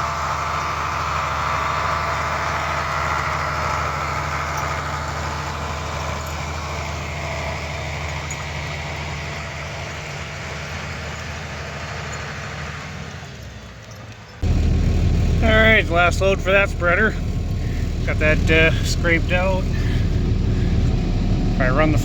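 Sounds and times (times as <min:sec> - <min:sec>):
farm machinery engine humming: 0:00.0 - 0:13.8, 0:14.4 - 0:22.0.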